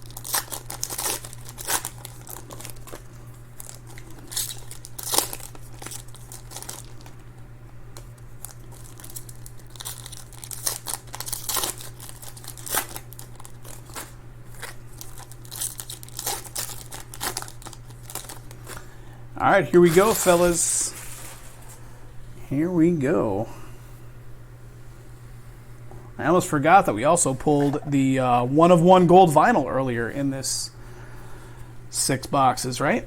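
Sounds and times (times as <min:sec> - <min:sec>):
wrappers tearing and crinkling: 0:00.0 - 0:07.2, 0:08.4 - 0:18.8, 0:19.7 - 0:21.8
steady low hum: 0:00.0 - 0:33.0.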